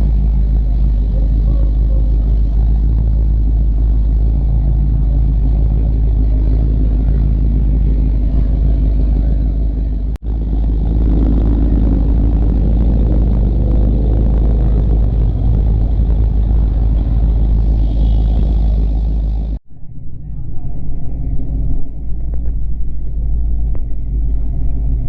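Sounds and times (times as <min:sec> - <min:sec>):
engine revving: 0:00.0 - 0:19.6
vehicle engines rumbling past: 0:00.0 - 0:25.0.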